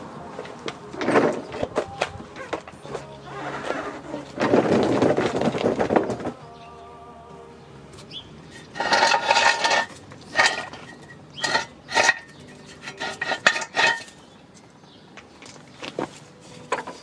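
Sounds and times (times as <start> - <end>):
metal tools clattering: 8.5 - 14.7, 15.4 - 17.0.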